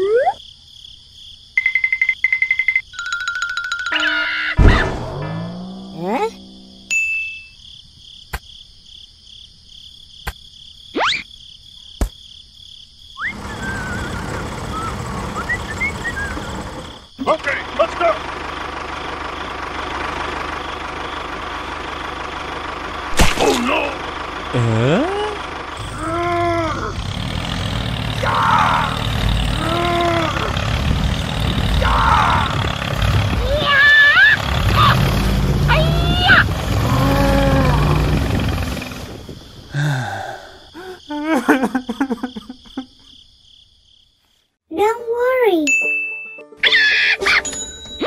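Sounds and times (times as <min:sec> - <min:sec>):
insects chirping trill: 0:00.0 - 0:23.0, 0:23.7 - 0:44.6
tractor engine rumbling: 0:03.0 - 0:06.9, 0:13.2 - 0:41.1
birds chirping: 0:13.2 - 0:18.3
pitched groan: 0:23.4 - 0:39.0.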